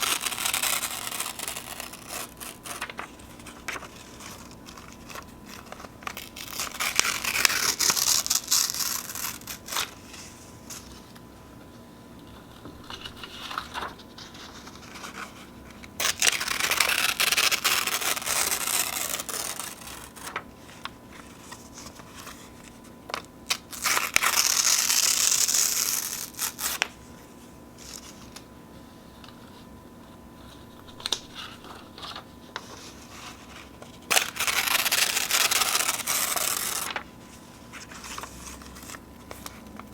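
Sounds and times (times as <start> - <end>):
paper tearing: 0.0 - 11.0, 16.0 - 22.4, 23.5 - 26.9, 30.6 - 39.6
paper rustling and crinkling: 0.0 - 39.9.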